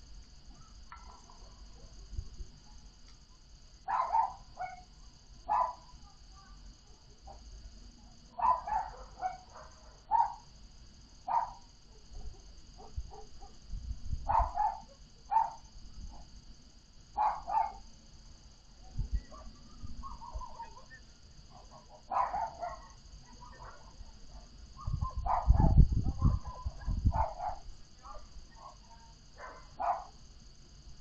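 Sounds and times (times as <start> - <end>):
low rumble of wind: 0.0 - 17.9, 18.6 - 31.0
dog barking: 3.9 - 4.9, 5.5 - 5.9, 8.4 - 10.4, 11.3 - 13.6, 14.3 - 15.7, 17.2 - 17.9, 19.2 - 30.2.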